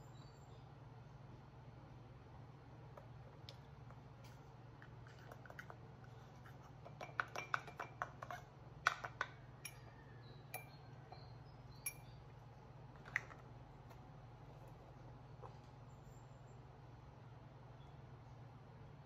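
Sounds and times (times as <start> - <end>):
metal spoon clinking in mug: 6.8 - 12.2.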